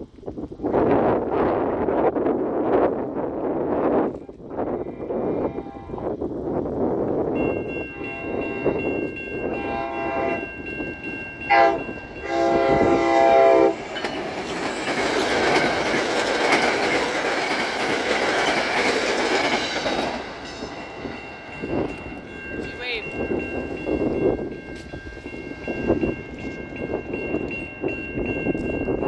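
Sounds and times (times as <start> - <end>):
train passing with rush: 0.0 - 29.0
train horn blasts: 4.7 - 6.2, 7.8 - 10.5, 11.5 - 13.8
wheel clatter on rails: 13.8 - 20.4.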